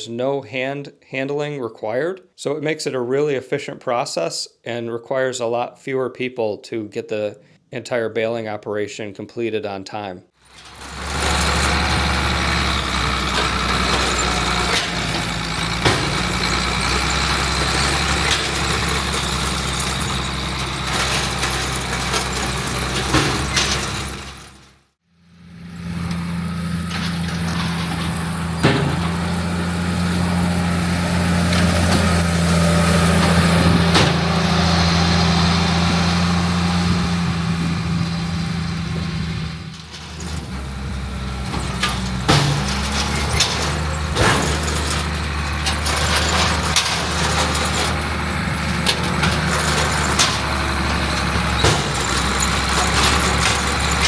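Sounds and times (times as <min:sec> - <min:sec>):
diesel farm machinery running: 0:10.4 - 0:54.0
deep engine hum: 0:10.7 - 0:24.5, 0:25.3 - 0:39.6.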